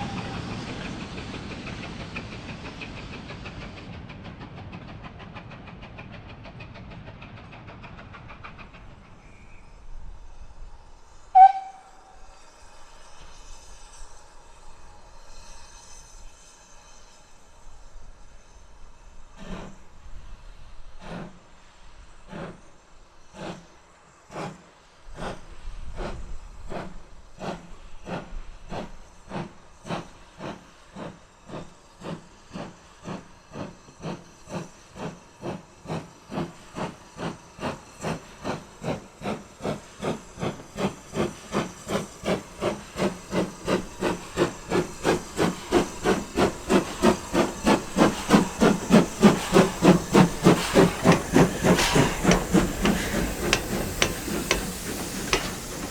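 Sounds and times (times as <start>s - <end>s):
steam locomotive chuffing: 0.0s - 55.9s.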